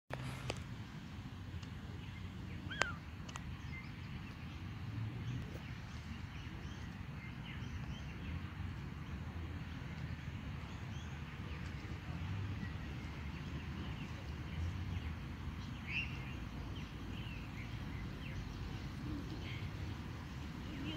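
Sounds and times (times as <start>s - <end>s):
faint bird chirps: 2.6s - 4.4s.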